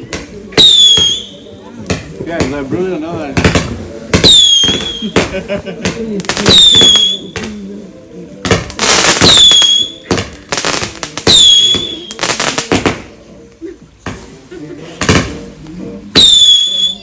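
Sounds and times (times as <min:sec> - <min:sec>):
fireworks bangs with crackle: 0:00.0 - 0:07.8, 0:08.4 - 0:13.2, 0:14.0 - 0:17.0
fireworks whistle: 0:00.6 - 0:01.5, 0:04.2 - 0:05.3, 0:06.3 - 0:07.6, 0:08.8 - 0:10.3, 0:11.2 - 0:13.0, 0:16.2 - 0:17.0.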